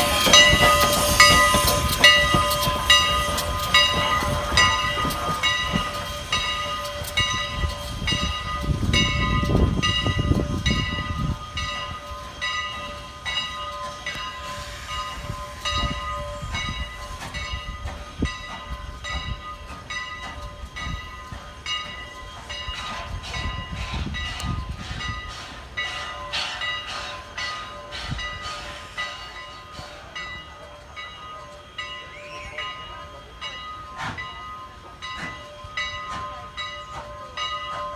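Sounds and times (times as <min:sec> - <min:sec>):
steady ringing tones: 0:00.0 - 0:23.8
train wheels clicking: 0:00.0 - 0:37.9
wind rumble on microphone: 0:07.2 - 0:11.8, 0:23.0 - 0:25.3.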